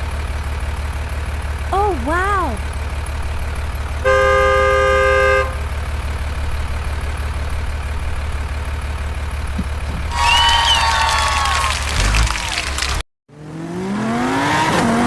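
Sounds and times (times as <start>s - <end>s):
low engine hum: 0.0s - 14.2s
vehicle horn honking: 4.0s - 5.8s.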